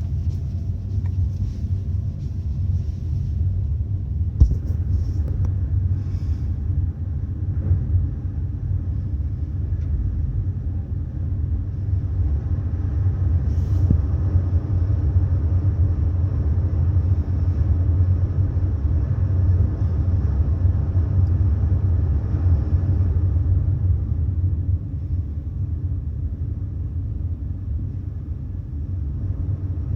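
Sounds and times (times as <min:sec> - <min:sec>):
ship machinery deep rumble: 0:00.0 - 0:29.9.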